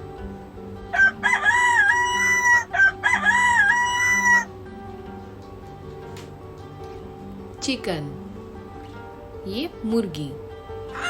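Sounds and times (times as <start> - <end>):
rooster crowing: 0.9 - 4.5.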